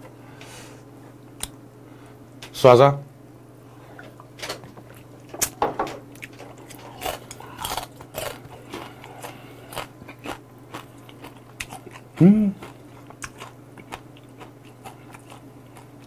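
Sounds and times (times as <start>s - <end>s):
crab shells crunching while chewing: 6.2s - 16.0s.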